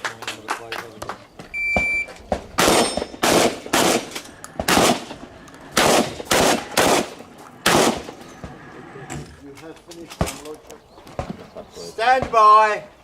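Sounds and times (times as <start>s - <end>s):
shotgun shots: 2.3s - 8.2s.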